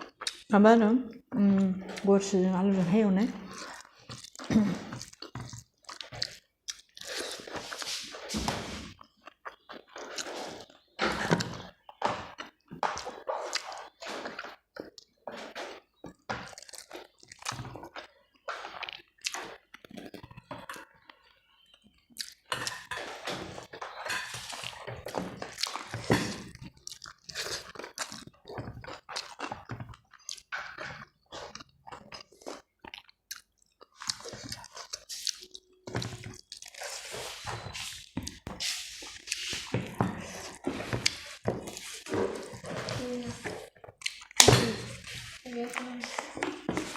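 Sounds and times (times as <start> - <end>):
person chewing food: 0.0 - 0.5, 3.4 - 46.9.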